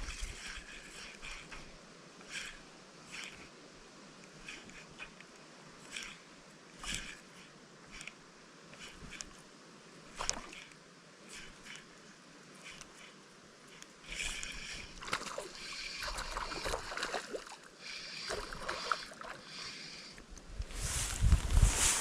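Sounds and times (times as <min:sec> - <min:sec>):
small clicks: 0:06.8 - 0:09.4
faint rustling: 0:17.9 - 0:22.0.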